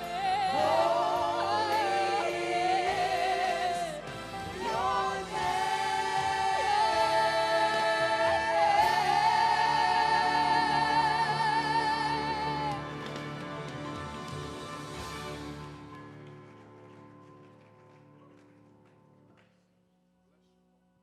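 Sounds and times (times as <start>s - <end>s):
singers holding long notes: 0.0s - 15.6s.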